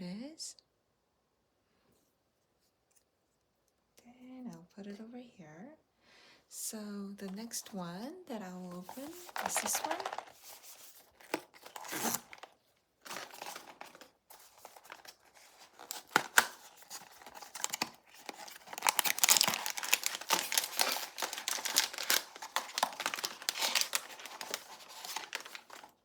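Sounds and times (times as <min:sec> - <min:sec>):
packaging torn and crinkled: 0:08.8 - 0:26.0.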